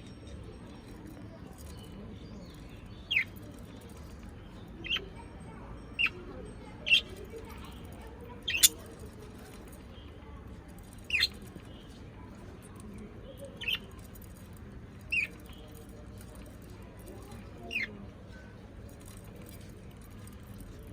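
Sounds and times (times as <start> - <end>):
low background noise: 0.0 - 20.9
parrot chirping: 8.5 - 8.8.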